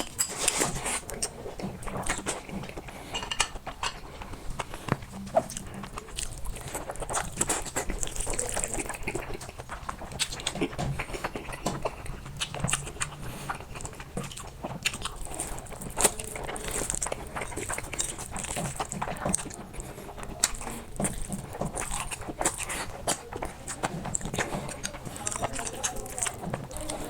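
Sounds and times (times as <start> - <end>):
person chewing noodles: 0.0 - 27.0.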